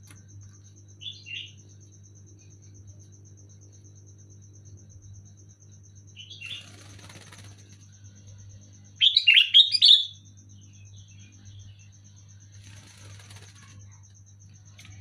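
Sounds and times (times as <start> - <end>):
bird chattering: 9.0 - 10.2.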